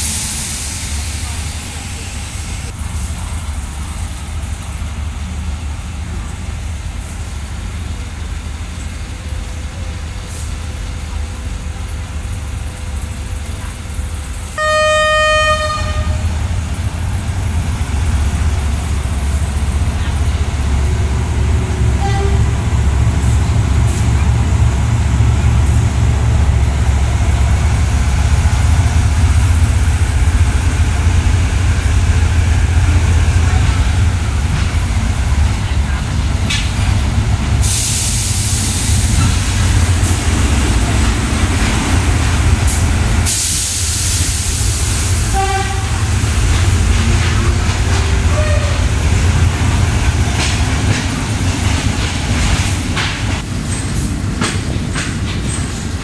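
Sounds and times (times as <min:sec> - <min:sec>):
low train rumble: 0:00.0 - 0:56.0
train horn blast: 0:14.6 - 0:16.4, 0:22.0 - 0:22.7, 0:45.3 - 0:46.1, 0:47.0 - 0:49.1.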